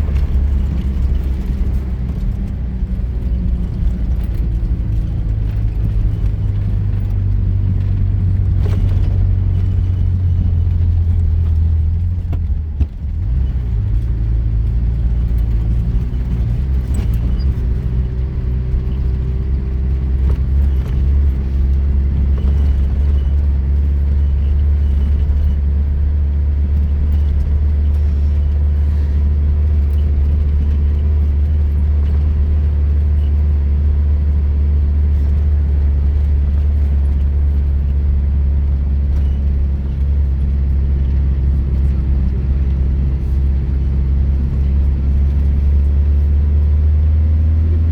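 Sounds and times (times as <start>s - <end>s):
car engine droning off-road: 0.0s - 47.9s.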